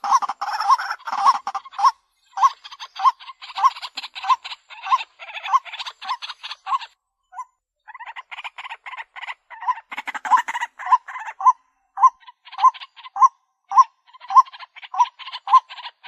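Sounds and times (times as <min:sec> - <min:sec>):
waterhen harsh calls: 0:00.0 - 0:07.0, 0:07.9 - 0:16.0.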